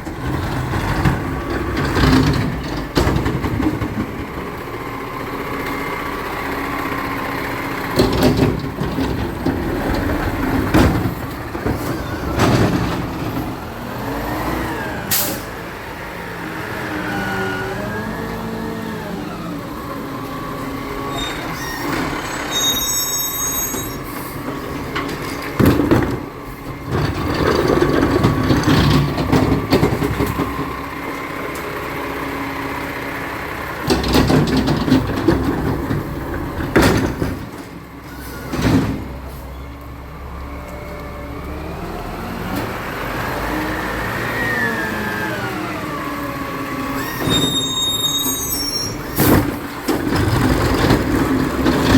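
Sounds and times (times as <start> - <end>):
truck engine running: 0.0 - 22.6, 24.0 - 51.9
hydraulics whining and squealing: 0.0 - 51.9
loud bangs and clatters: 7.9 - 13.6.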